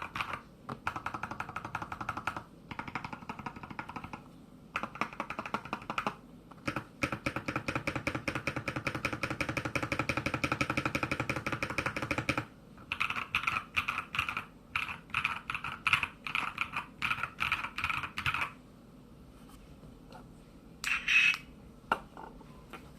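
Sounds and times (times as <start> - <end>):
mechanical keyboard keystrokes: 4.8 - 18.5.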